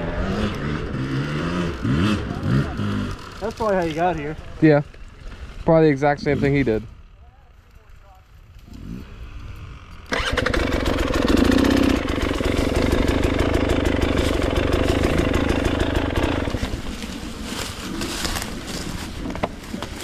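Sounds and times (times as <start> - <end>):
dirt bike engine revving: 0.0 - 4.2, 8.8 - 19.8.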